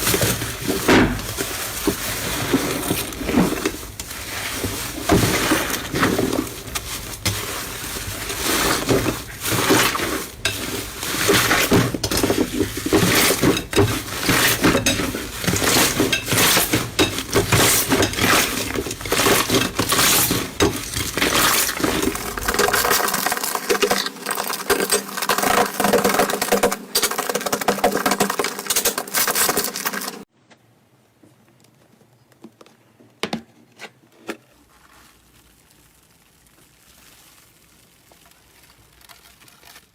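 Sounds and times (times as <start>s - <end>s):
slime crackling and popping: 34.6s - 39.9s.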